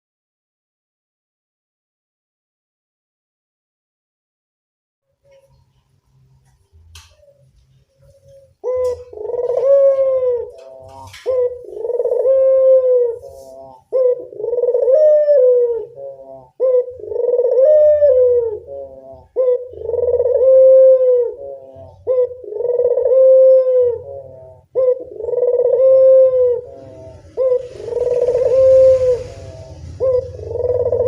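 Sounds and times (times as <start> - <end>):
dove cooing: 7.1 - 31.0.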